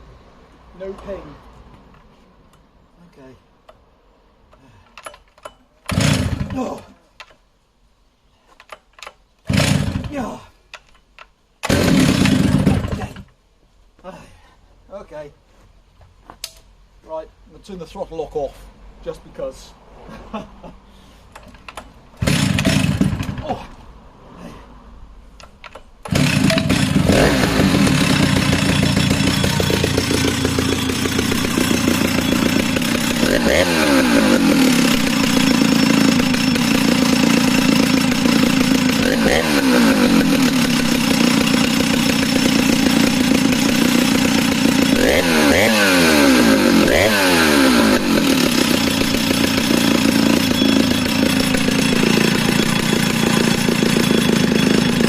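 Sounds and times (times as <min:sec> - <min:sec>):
chainsaw starting and idling: 0:05.0 - 0:06.9, 0:09.0 - 0:10.4, 0:11.6 - 0:13.3, 0:21.5 - 0:23.7, 0:25.6 - 0:55.0
chainsaw revving: 0:05.9 - 0:06.8, 0:09.5 - 0:10.3, 0:11.6 - 0:13.3, 0:22.2 - 0:23.6, 0:26.0 - 0:55.0.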